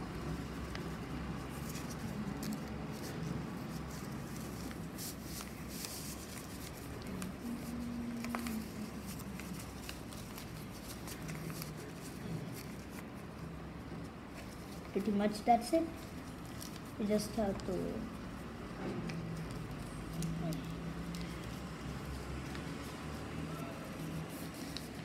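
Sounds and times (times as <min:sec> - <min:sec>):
paper rustling and creasing: 0:00.0 - 0:25.0.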